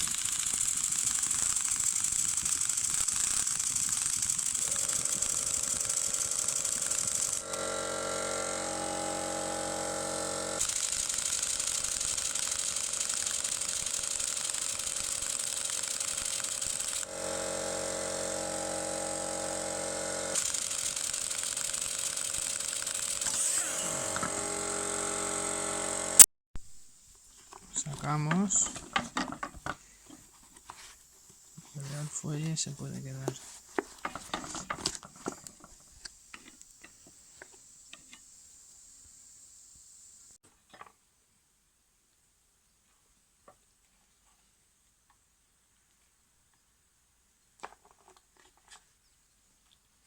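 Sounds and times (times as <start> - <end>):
impact wrench rattling: 0.0 - 7.7.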